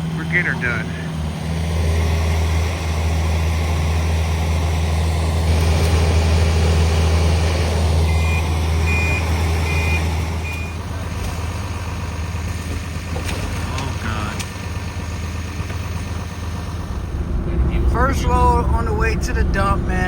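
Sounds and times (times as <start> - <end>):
truck engine humming: 0.0 - 20.0
reversing alarm beeps: 8.1 - 10.8.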